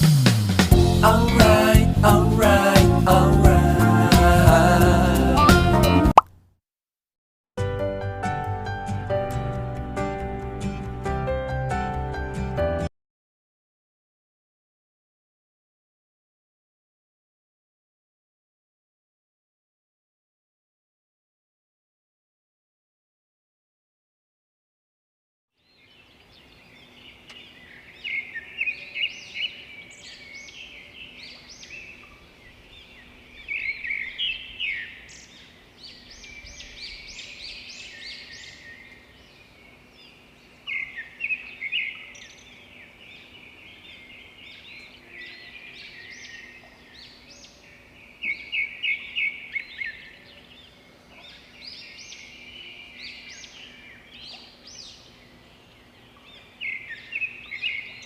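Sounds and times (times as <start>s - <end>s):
birds chirping: 25.6s - 58.0s.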